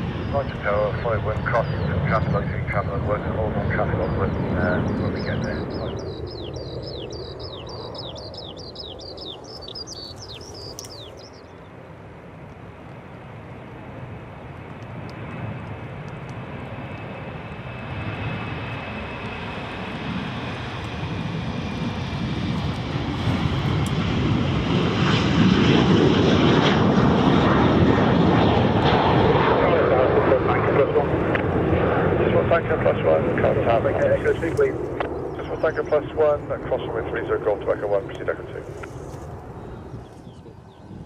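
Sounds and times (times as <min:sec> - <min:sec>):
airliner engines roaring: 0:00.0 - 0:41.0
bird chirping rapidly: 0:04.3 - 0:11.6.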